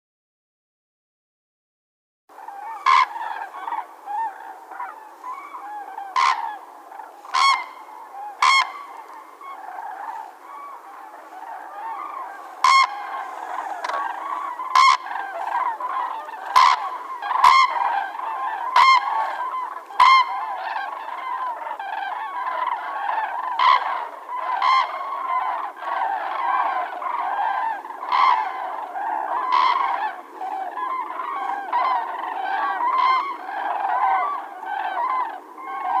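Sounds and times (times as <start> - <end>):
cranes trumpeting calls: 2.3 - 36.0.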